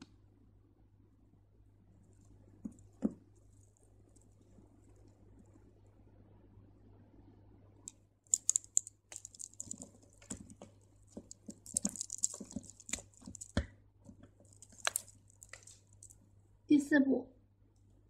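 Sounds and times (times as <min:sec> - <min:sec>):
thread rustling through beads: 0:02.0 - 0:05.6, 0:08.3 - 0:16.4
crystal beads clicking: 0:08.3 - 0:13.6, 0:14.5 - 0:16.2.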